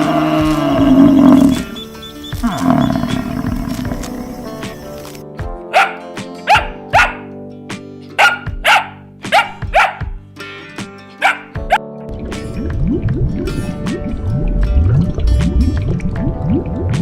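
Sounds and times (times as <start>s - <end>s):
background music: 0.0s - 17.0s
dog barking: 5.7s - 7.3s, 8.2s - 10.1s, 11.2s - 11.8s.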